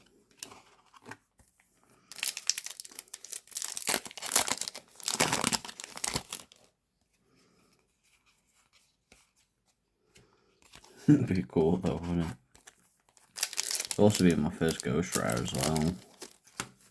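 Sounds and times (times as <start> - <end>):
foil wrapper crinkling and tearing: 2.1 - 6.7, 12.6 - 16.6.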